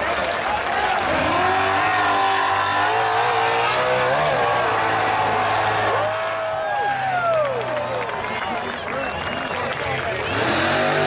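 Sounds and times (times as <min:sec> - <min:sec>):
race car engine at full throttle: 0:00.0 - 0:11.0.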